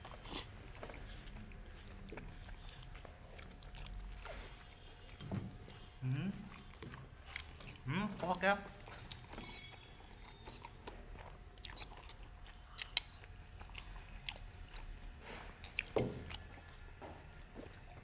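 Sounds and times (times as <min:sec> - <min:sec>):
people chewing: 0:00.0 - 0:18.0.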